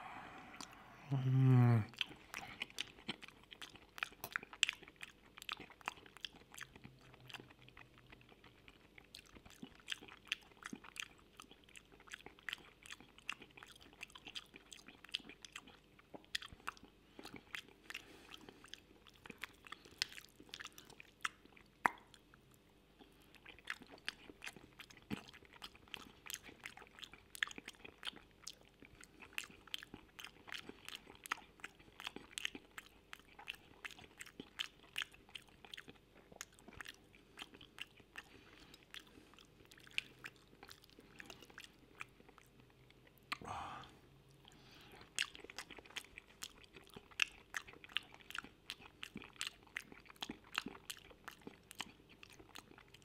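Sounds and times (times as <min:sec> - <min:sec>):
close chewing with mouth clicks: 0:00.6 - 0:43.5, 0:44.2 - 0:53.0.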